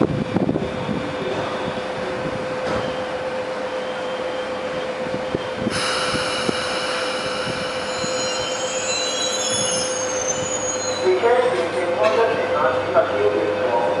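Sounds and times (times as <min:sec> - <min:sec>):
train wheels squealing: 0:03.7 - 0:11.7
steady hum: 0:05.7 - 0:08.8.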